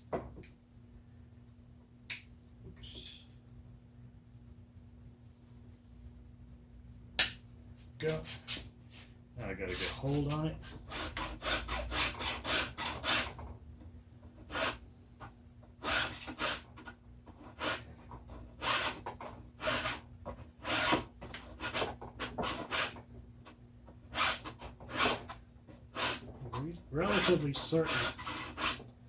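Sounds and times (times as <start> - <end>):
hand tool rasping a groove: 9.7 - 13.4, 14.4 - 14.8, 15.8 - 16.7, 17.4 - 20.0, 20.6 - 23.0, 24.1 - 25.3, 25.9 - 28.8.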